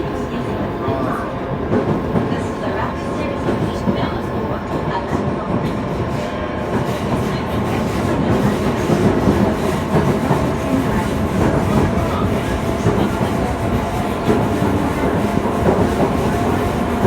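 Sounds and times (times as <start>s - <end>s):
train wheels clacking on rails: 4.7s - 17.0s.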